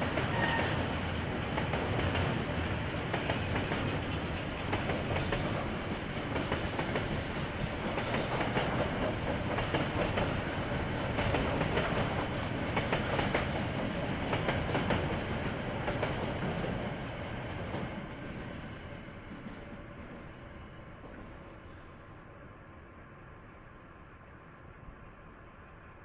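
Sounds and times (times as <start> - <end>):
train wheels clacking over rail joints: 0.0 - 16.9.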